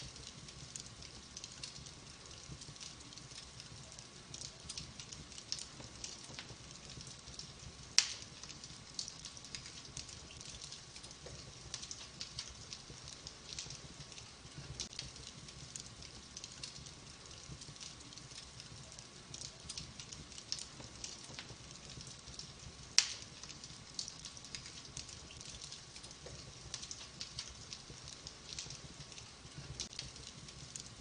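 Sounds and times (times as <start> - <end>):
wood fire crackling: 0.0 - 31.0
sharp pop of fire: 8.0 - 8.3, 23.0 - 23.3.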